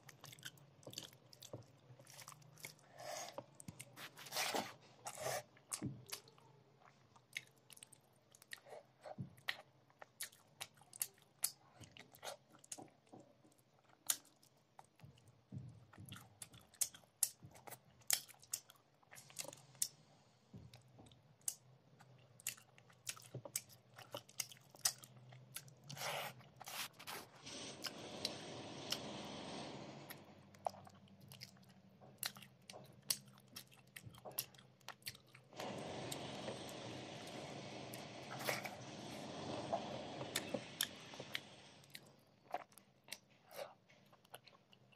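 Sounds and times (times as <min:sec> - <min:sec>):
close chewing with wet mouth clicks: 0:00.0 - 0:04.0, 0:05.6 - 0:15.3, 0:15.9 - 0:20.0, 0:21.1 - 0:26.8, 0:30.5 - 0:35.5, 0:40.8 - 0:44.9
steady hiss: 0:27.4 - 0:30.4, 0:35.6 - 0:41.9.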